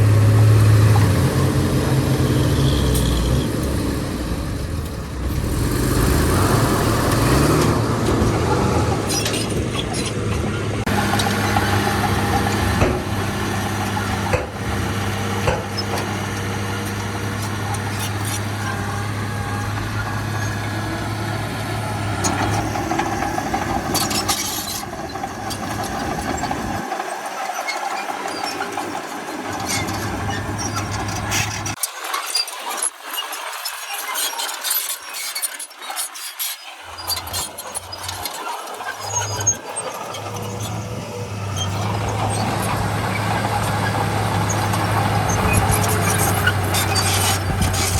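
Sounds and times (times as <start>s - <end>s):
diesel machinery running: 0.0s - 31.8s, 36.8s - 47.9s
sharp clicks and knocks: 7.1s - 18.6s.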